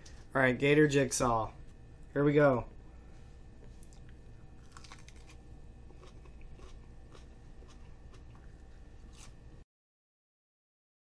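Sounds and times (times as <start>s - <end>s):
crunchy chewing of a pepper: 3.6s - 9.4s.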